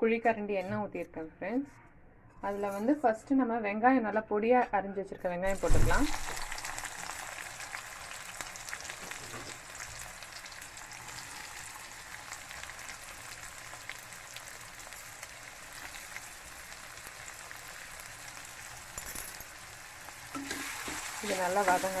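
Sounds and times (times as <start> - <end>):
onions sizzling in hot oil: 5.5 - 22.0.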